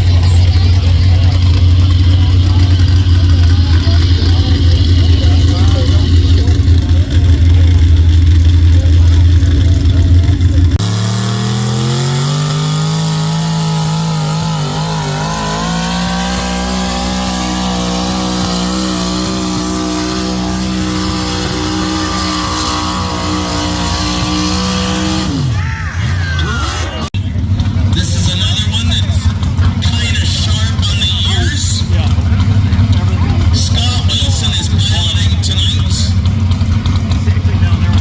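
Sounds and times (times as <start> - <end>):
loud low rumble: 0.0 - 25.7
engine at full throttle: 0.0 - 38.0.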